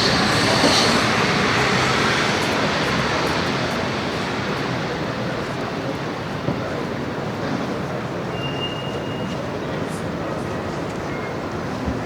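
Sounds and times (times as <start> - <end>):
passing city traffic: 0.0 - 8.3.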